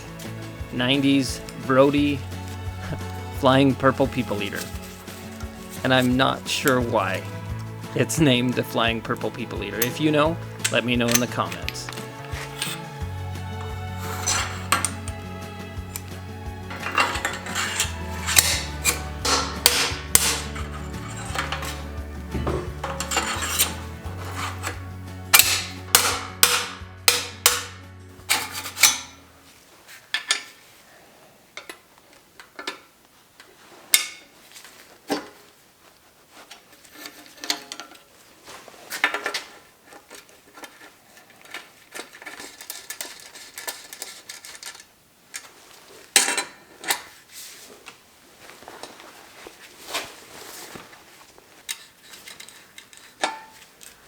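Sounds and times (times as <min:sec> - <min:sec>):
background music: 0:00.0 - 0:29.6
tools clicking on bike parts: 0:04.0 - 0:29.2, 0:30.1 - 0:30.6, 0:36.8 - 0:38.1, 0:39.0 - 0:45.5, 0:51.6 - 0:54.0
loud metal strikes: 0:18.3 - 0:20.6, 0:25.3 - 0:27.8.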